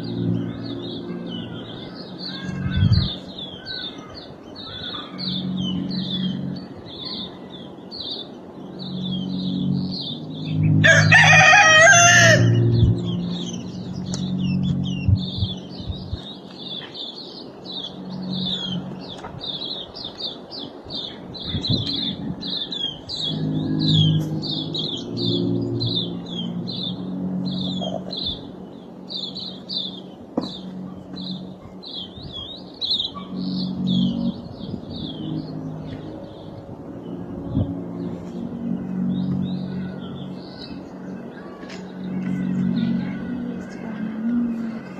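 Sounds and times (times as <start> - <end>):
bird chirping: 0.0 - 44.9
low hum: 8.5 - 16.8.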